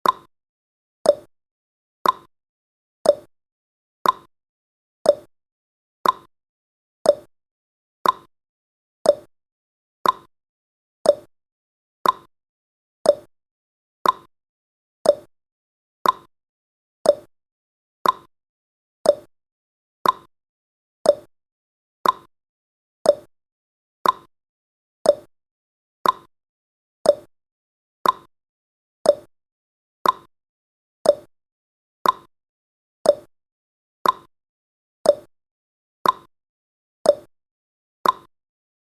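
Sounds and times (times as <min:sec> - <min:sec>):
timer ticking: 0:00.0 - 0:00.3, 0:01.1 - 0:01.3, 0:02.0 - 0:02.3, 0:03.0 - 0:03.3, 0:04.0 - 0:04.3, 0:05.0 - 0:05.3, 0:06.0 - 0:06.3, 0:07.0 - 0:07.3, 0:08.0 - 0:08.3, 0:09.0 - 0:09.3, 0:10.0 - 0:10.3, 0:11.0 - 0:11.3, 0:12.0 - 0:12.3, 0:13.0 - 0:13.3, 0:14.0 - 0:14.3, 0:15.0 - 0:15.3, 0:16.0 - 0:16.3, 0:17.0 - 0:17.3, 0:18.0 - 0:18.3, 0:19.0 - 0:19.3, 0:20.0 - 0:20.3, 0:21.0 - 0:21.3, 0:22.0 - 0:22.3, 0:23.0 - 0:23.3, 0:24.0 - 0:24.3, 0:25.0 - 0:25.3, 0:26.0 - 0:26.3, 0:27.0 - 0:27.3, 0:28.0 - 0:28.3, 0:29.0 - 0:29.3, 0:30.0 - 0:30.3, 0:31.0 - 0:31.3, 0:32.0 - 0:32.3, 0:33.0 - 0:33.3, 0:34.0 - 0:34.3, 0:35.0 - 0:35.3, 0:36.0 - 0:36.3, 0:37.1 - 0:37.3, 0:38.0 - 0:38.3.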